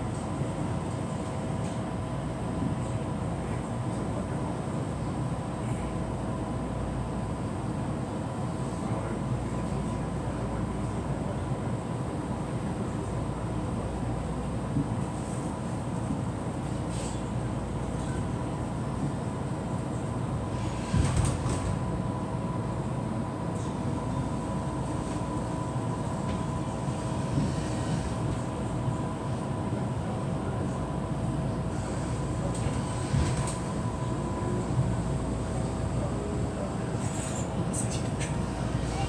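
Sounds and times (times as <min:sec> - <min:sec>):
train wheels rumbling on track: 0:14.5 - 0:39.0.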